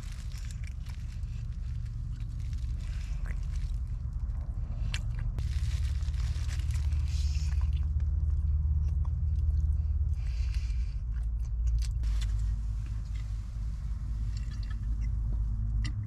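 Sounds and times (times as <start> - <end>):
small clicks and crunches: 0.0 - 9.7.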